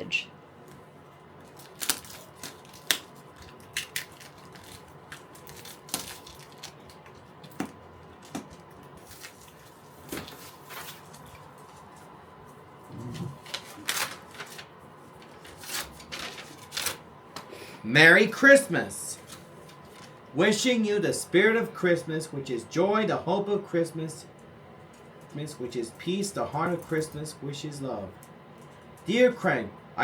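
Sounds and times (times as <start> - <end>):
tape and paper tearing: 1.6 - 6.8, 15.4 - 17.0.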